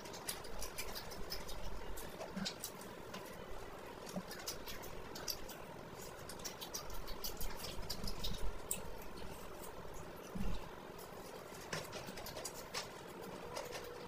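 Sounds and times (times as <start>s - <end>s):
person chewing with wet mouth clicks: 4.1s - 9.8s.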